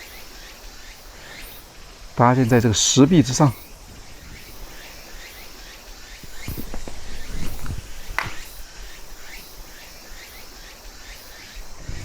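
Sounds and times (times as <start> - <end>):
insects chirping: 0.0 - 12.0
footsteps on ground: 6.0 - 9.4
low thuds: 6.2 - 9.4.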